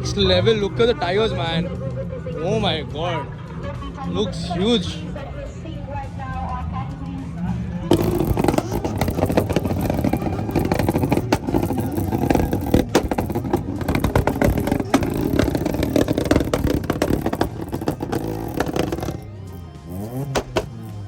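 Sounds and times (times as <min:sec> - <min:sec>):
loud vehicle engine running: 0:07.7 - 0:21.0.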